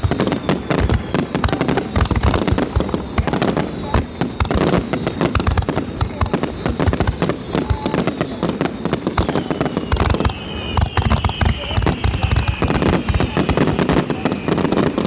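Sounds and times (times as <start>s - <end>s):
fireworks bursts and bangs: 0.0s - 15.0s
falling high whistle: 2.9s - 15.0s.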